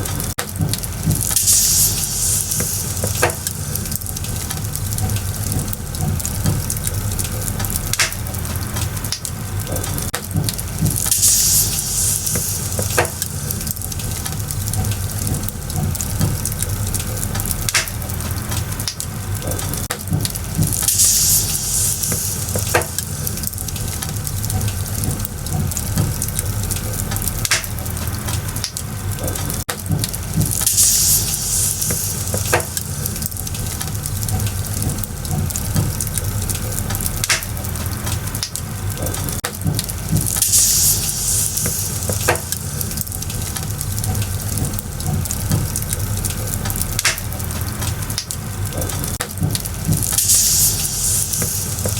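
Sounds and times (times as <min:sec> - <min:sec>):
bonfire crackling and popping: 0:00.0 - 0:51.9
fire hissing surge: 0:00.9 - 0:09.1, 0:10.7 - 0:18.5, 0:20.4 - 0:25.4, 0:30.2 - 0:36.5, 0:40.0 - 0:47.3, 0:49.8 - 0:51.9.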